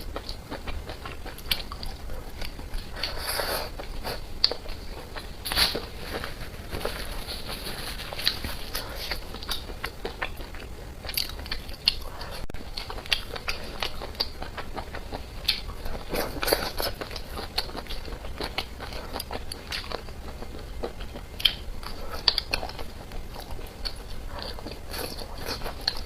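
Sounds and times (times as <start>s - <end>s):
person chewing crunchy food: 0.0s - 26.0s.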